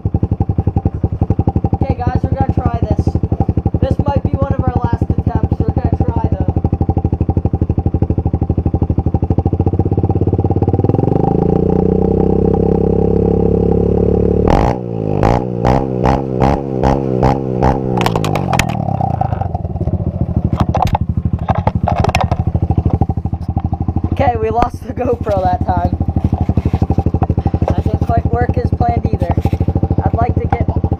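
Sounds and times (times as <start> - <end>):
dirt bike engine revving: 10.0 - 30.9
exhaust backfire pops: 14.4 - 28.5.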